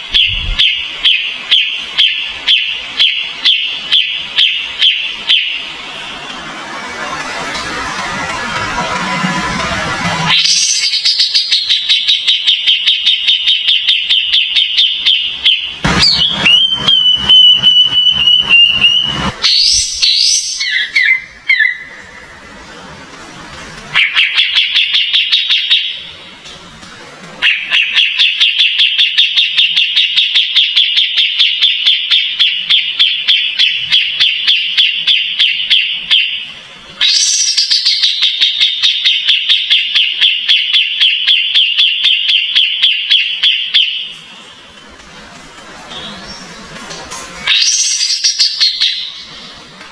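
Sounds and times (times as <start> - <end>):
bird whistled phrase: 14.5 - 21.9.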